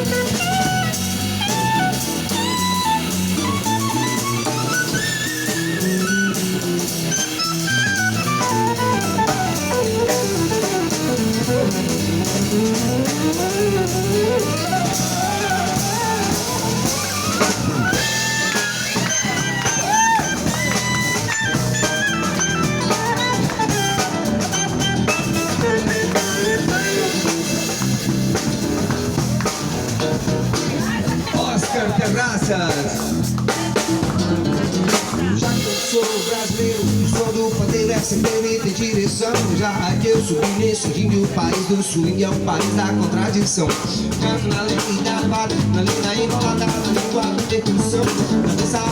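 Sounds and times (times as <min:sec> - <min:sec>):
sliding lead line: 0:00.0 - 0:31.3
instrumental band playing: 0:00.0 - 0:48.9.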